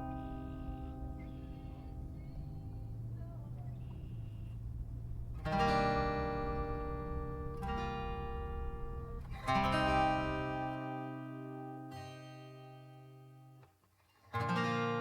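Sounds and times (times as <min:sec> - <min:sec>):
low rumble: 0:00.0 - 0:10.9
acoustic guitar strummed chords: 0:00.0 - 0:13.7, 0:14.3 - 0:15.0.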